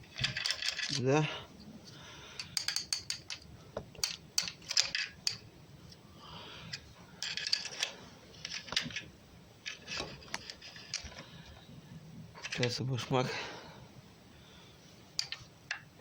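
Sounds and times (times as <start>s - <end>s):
small metallic clicks and clinks: 0.1s - 1.1s, 2.4s - 5.4s, 15.2s - 15.9s.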